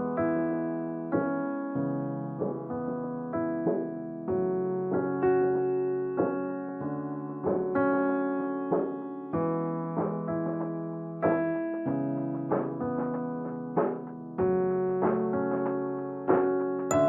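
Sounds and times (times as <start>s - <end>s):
piano playing slow chords: 15.6s - 17.0s.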